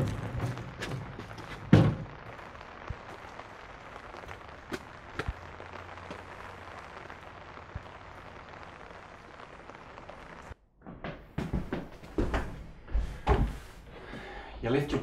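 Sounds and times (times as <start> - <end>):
steady rain: 0.0 - 10.6.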